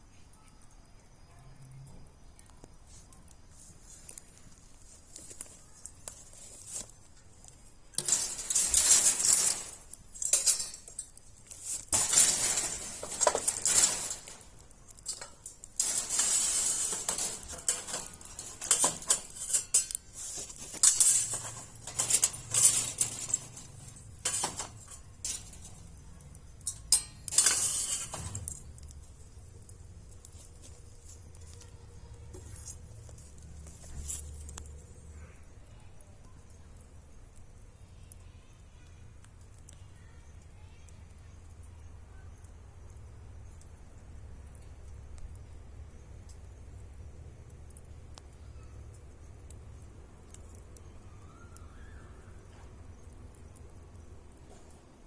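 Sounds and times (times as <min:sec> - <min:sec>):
faint low hum: 0:00.0 - 0:55.0
clinking and scraping handling noises: 0:02.9 - 0:35.0.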